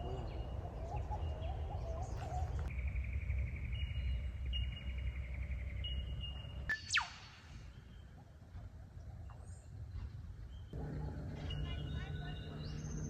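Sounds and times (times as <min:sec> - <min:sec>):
wild birds calling: 0:00.0 - 0:02.7, 0:10.8 - 0:13.0
low outdoor rumble: 0:10.1 - 0:13.0.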